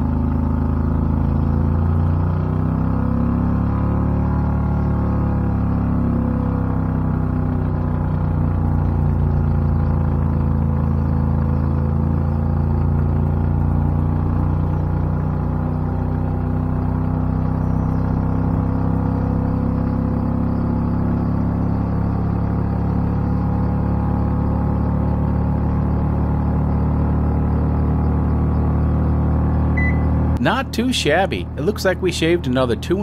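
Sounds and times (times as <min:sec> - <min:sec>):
car engine droning under acceleration: 0:00.0 - 0:33.0.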